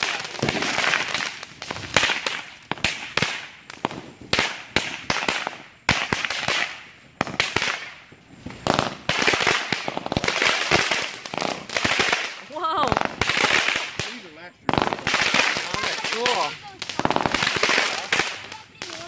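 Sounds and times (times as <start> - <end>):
fireworks bangs and pops: 0.0 - 19.0.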